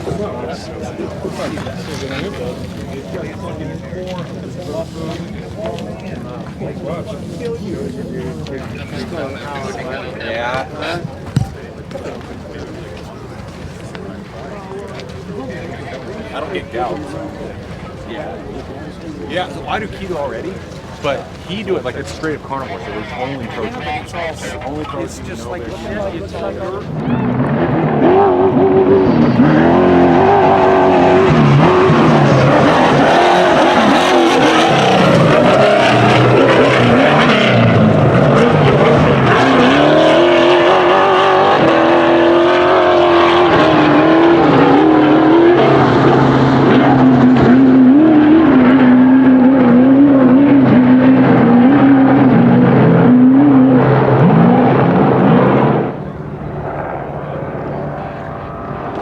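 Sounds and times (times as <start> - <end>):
truck engine revving: 14.9 - 59.0.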